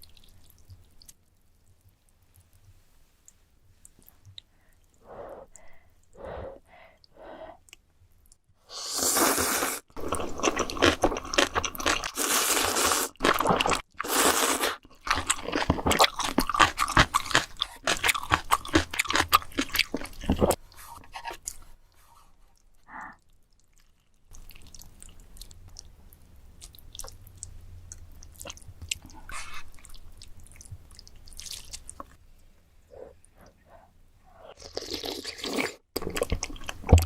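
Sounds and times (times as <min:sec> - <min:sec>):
chewing crunchy food: 0:10.0 - 0:32.2, 0:34.5 - 0:37.0.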